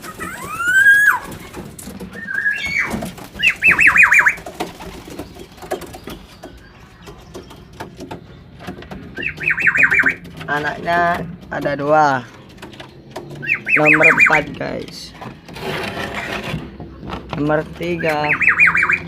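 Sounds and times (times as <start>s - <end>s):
pigeon call: 0.0s - 5.0s, 9.1s - 10.6s, 13.3s - 14.5s, 17.9s - 19.0s
high falling chirps: 2.2s - 7.7s, 8.4s - 10.5s, 13.4s - 14.5s, 17.9s - 19.0s.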